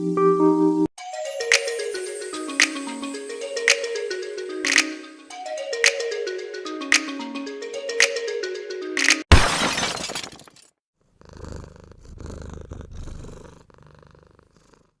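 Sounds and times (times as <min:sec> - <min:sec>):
mallet-like music notes: 0:01.0 - 0:09.2
shattering crash: 0:09.3 - 0:10.7.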